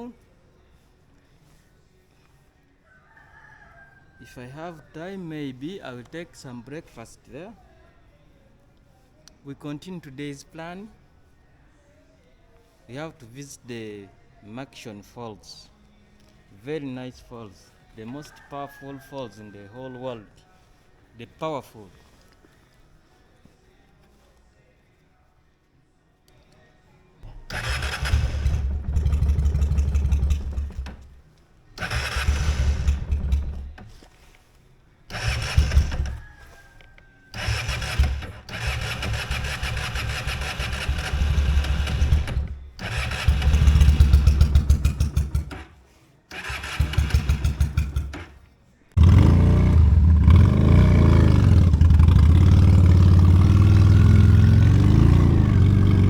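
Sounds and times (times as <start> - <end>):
motorcycle electric starter cranking: 27.3 - 31.2, 31.8 - 34.0, 35.1 - 36.2, 37.4 - 48.4, 49.0 - 56.0
motorcycle engine running: 27.5 - 31.2, 31.8 - 33.8, 35.1 - 36.2, 37.4 - 45.7, 46.4 - 48.2, 49.0 - 56.0.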